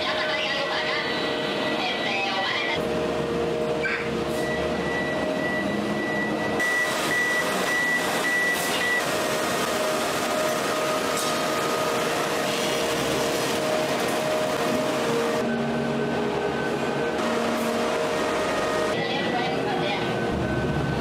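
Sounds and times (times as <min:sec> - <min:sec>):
high machine whine: 0:00.0 - 0:21.0
forging press machinery humming: 0:02.8 - 0:19.0.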